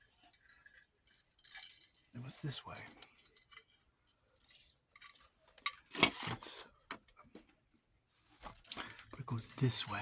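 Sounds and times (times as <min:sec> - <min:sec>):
small clicks and clinks: 0:00.2 - 0:02.2.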